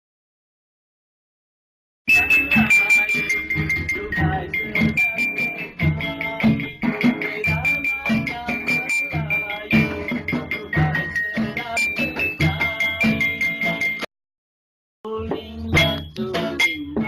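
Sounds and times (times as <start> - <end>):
high melody line: 2.1 - 14.1
rattling percussion: 2.1 - 14.1, 15.1 - 17.0.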